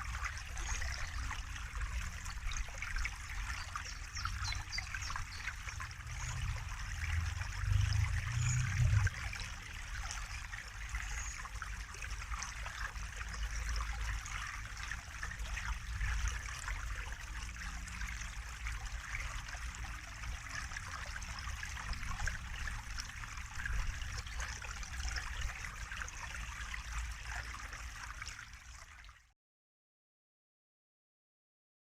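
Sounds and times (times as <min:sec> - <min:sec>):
water trickling and splashing: 0:00.0 - 0:29.3
low rumble: 0:05.8 - 0:09.4.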